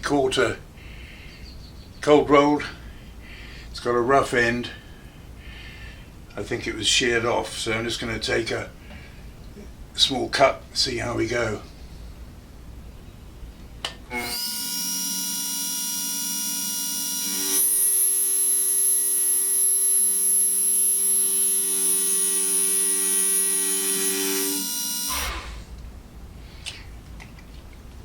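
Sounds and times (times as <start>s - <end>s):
end mill cutting steel squeal: 14.1s - 25.6s
milling machine spindle whine: 14.1s - 25.6s.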